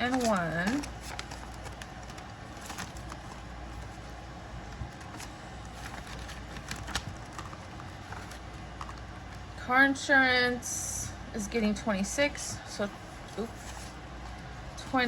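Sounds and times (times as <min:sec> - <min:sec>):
paper bills rustling: 0:00.0 - 0:09.1
steady low hum: 0:00.0 - 0:15.0.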